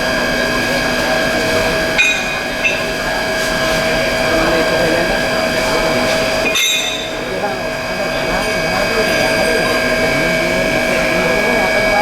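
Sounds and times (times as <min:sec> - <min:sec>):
machinery humming and whining: 0:00.0 - 0:12.0
sharp metallic clanks: 0:01.9 - 0:03.2, 0:06.4 - 0:07.4.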